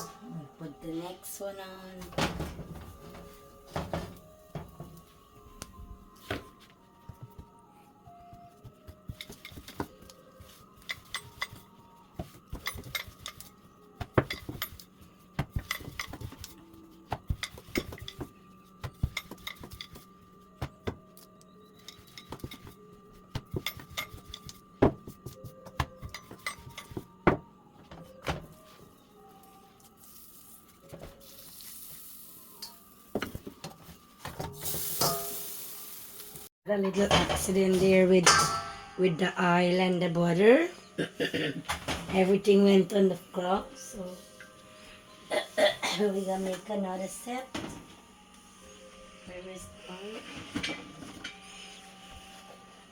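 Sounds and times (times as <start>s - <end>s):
roti sizzling in a pan: 29.8s - 33.8s, 34.5s - 36.5s.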